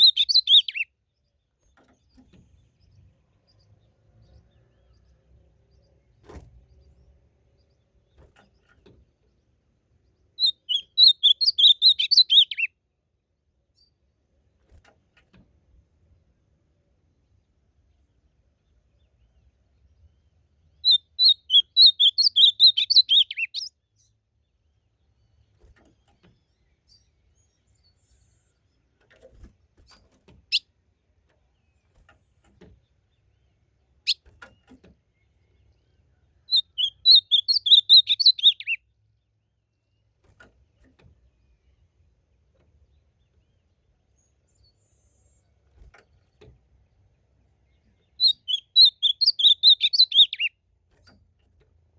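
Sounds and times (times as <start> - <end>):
bird singing warbled notes: 0.0 - 0.9, 10.4 - 12.7, 20.7 - 23.7, 36.4 - 38.8, 48.0 - 50.6.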